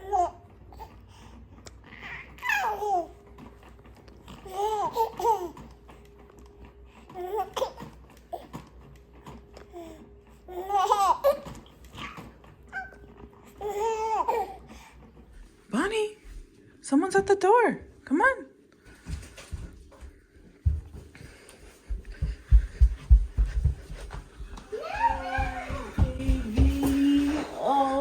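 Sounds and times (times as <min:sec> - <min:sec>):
child squealing: 0:24.7 - 0:26.2.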